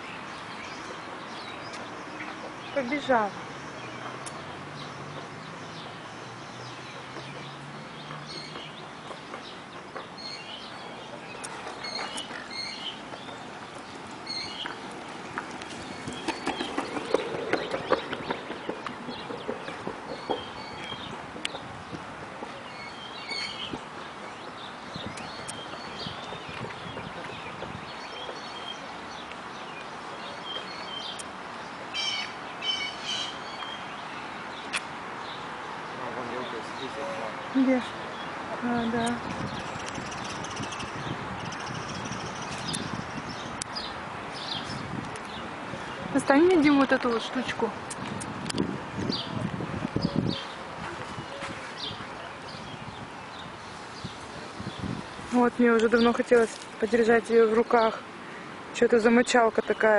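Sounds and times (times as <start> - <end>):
footsteps on paved path: 0.0 - 31.9, 33.4 - 59.9
small birds chirping: 0.0 - 48.3, 49.0 - 59.9
outdoor background noise: 0.0 - 59.9
harsh bird calls: 31.9 - 46.0.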